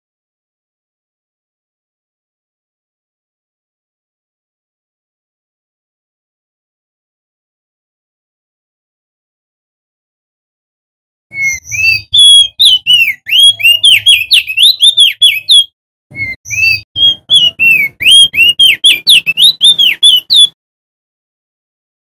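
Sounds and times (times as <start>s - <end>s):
bird singing whistled chirps: 11.3s - 20.6s.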